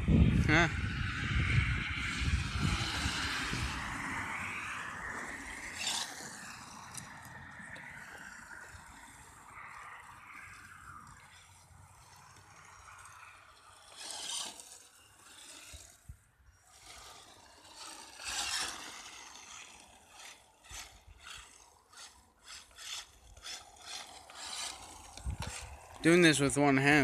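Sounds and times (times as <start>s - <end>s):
gravel crunching and scraping: 0.2s - 27.0s.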